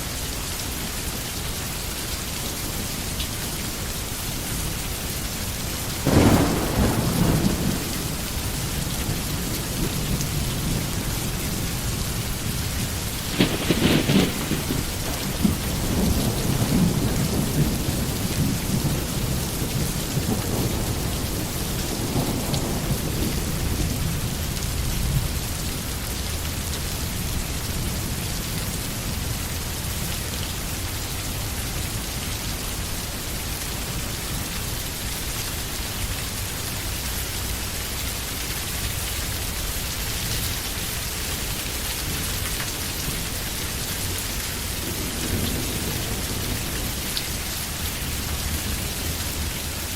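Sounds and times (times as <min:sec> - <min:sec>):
rain falling: 0:00.0 - 0:49.9
thunder rumbling: 0:05.9 - 0:25.4, 0:38.9 - 0:49.9.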